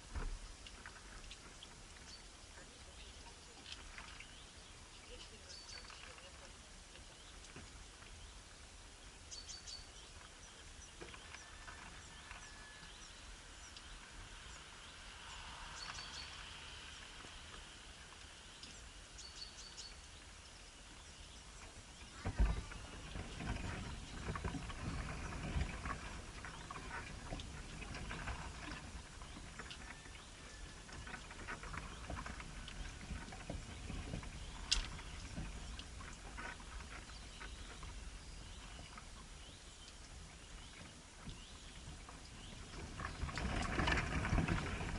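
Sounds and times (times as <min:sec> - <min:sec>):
small bird chirping: 0:09.3 - 0:17.0
rustling and knocks: 0:22.1 - 0:30.0.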